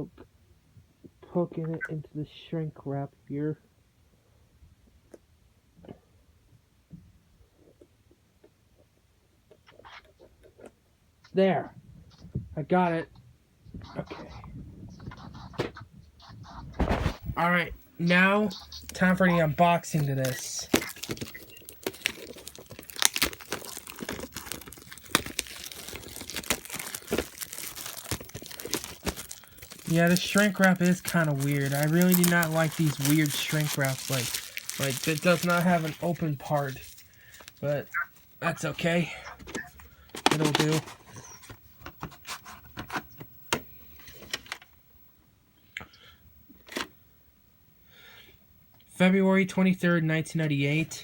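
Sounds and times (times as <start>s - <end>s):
plastic shrink wrap tearing: 18.8s - 37.8s.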